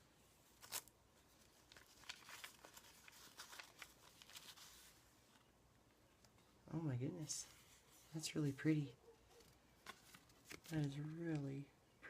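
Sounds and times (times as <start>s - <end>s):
paper rustling and crinkling: 0.4s - 5.5s, 9.2s - 11.5s.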